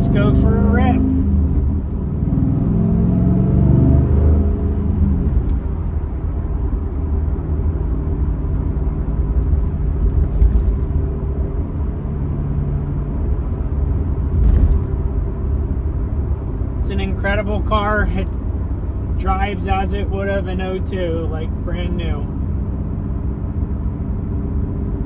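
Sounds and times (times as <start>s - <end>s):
car engine accelerating: 0.0s - 22.5s.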